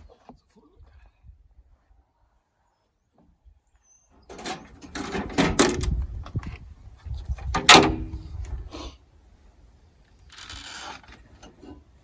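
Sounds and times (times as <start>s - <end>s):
clunks and knocks: 4.3s - 6.6s, 7.4s - 8.3s.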